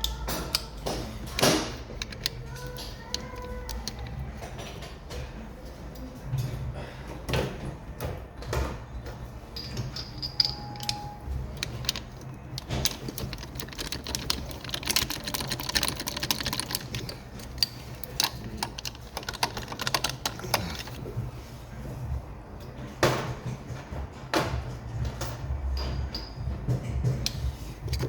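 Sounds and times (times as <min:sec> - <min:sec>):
hand tools clicking on metal: 0:00.0 - 0:04.9, 0:09.6 - 0:21.0.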